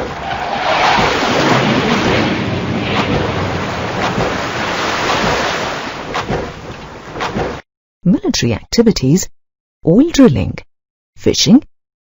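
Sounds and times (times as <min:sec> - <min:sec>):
ocean surf rushing: 0:00.0 - 0:07.6.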